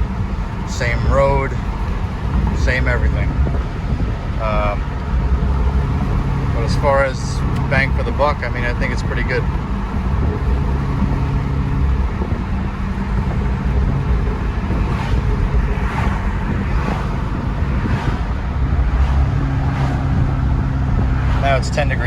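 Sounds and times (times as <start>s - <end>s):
car engine humming: 0.0s - 22.0s
road noise: 0.0s - 22.0s.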